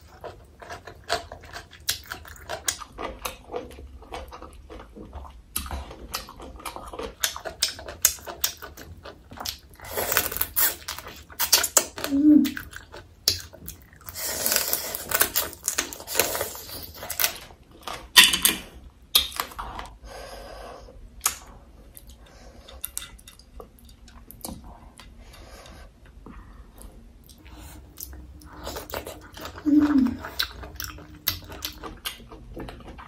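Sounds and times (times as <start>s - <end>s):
crunching and wet chewing: 0.0s - 20.0s, 26.8s - 33.0s.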